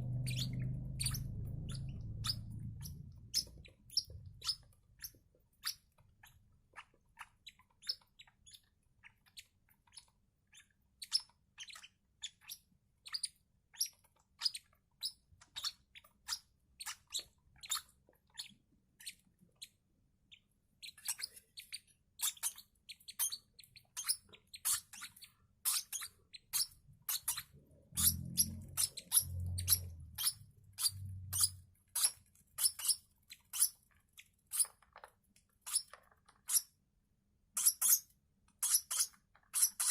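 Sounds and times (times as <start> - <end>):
chicks peeping: 0.0 - 5.2.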